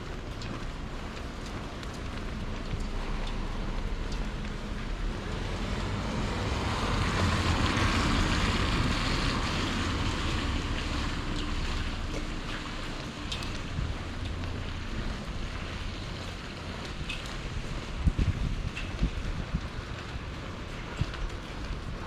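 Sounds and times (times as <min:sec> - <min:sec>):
tyres hissing on wet road: 0:02.0 - 0:17.3.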